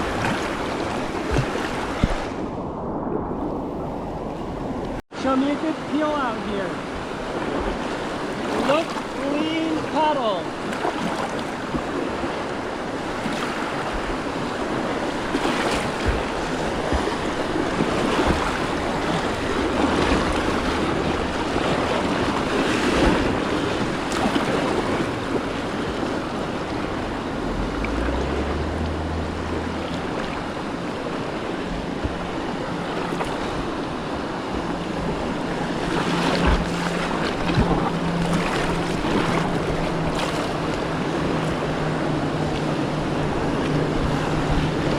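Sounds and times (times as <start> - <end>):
kayak paddle splashes: 0.0 - 2.4, 5.8 - 44.9
river rushing: 0.0 - 2.8, 4.1 - 44.9
wind buffeting microphone: 10.7 - 44.9.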